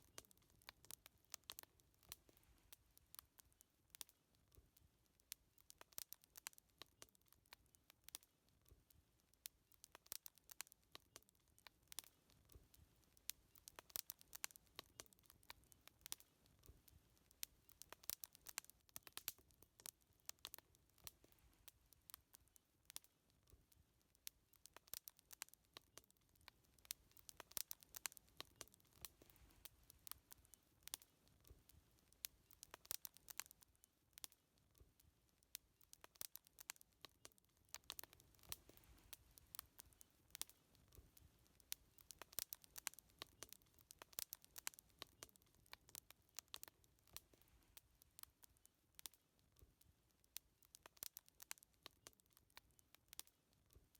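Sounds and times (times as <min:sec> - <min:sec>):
wood fire crackling: 0:00.0 - 0:53.9
low hiss: 0:10.2 - 0:48.5.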